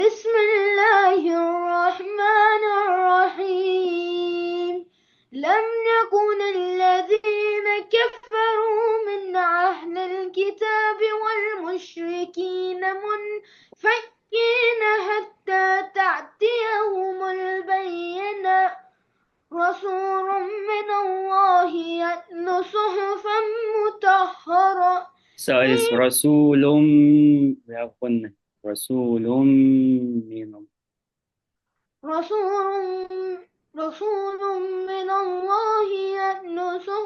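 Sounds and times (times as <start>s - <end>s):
young voice chanting recitation: 0.0s - 4.8s, 5.4s - 18.8s, 19.5s - 30.4s.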